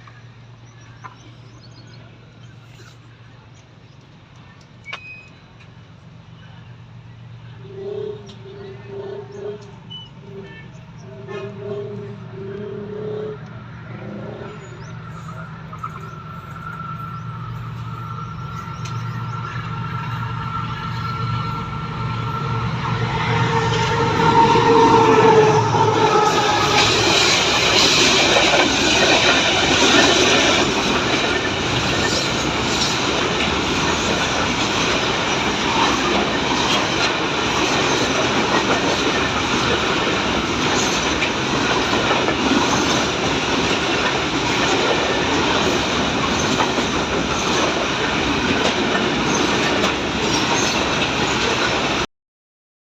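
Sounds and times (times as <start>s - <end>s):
train rumbling on track: 0.0s - 52.1s
wheels clacking over rail joints: 23.7s - 52.0s.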